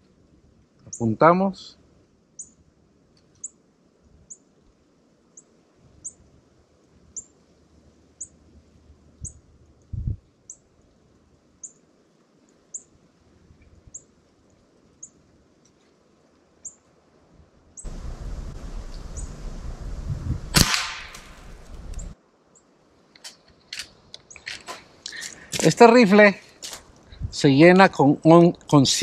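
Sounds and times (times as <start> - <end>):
outdoor background noise: 0.0 - 29.0
bird chirping: 17.8 - 19.8, 21.3 - 22.2.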